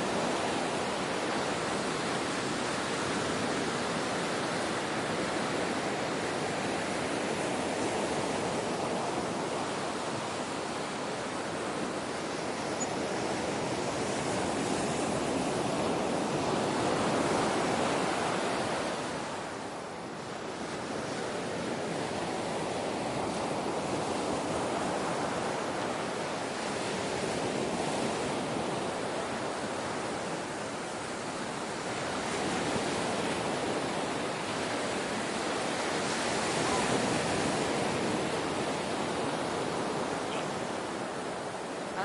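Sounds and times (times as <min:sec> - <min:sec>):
ocean waves washing: 0:00.0 - 0:42.0.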